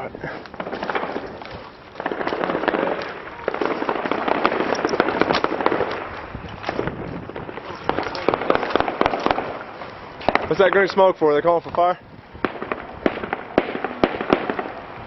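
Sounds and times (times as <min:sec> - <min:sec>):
rapid gunfire bursts: 0:02.0 - 0:06.0, 0:07.4 - 0:09.5, 0:12.4 - 0:14.8.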